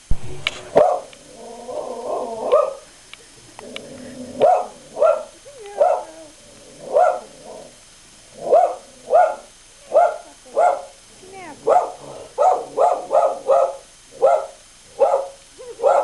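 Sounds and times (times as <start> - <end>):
dog barking: 0.7 - 1.1, 2.5 - 2.9, 4.4 - 6.2, 6.9 - 7.4, 8.4 - 11.0, 11.6 - 16.0
dog whining: 4.0 - 7.7.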